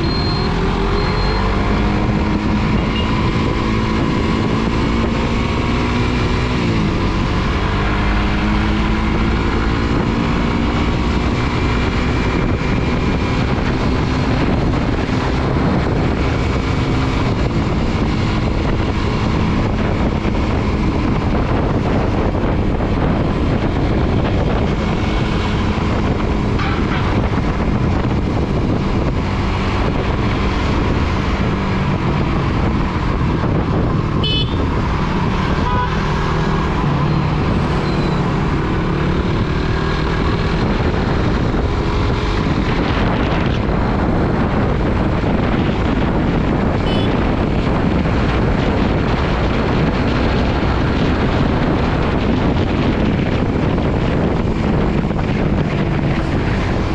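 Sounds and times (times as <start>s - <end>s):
wind rushing over microphone: 0.0s - 56.9s
vehicle horn toot: 34.2s - 34.6s, 35.6s - 36.0s, 46.8s - 47.2s.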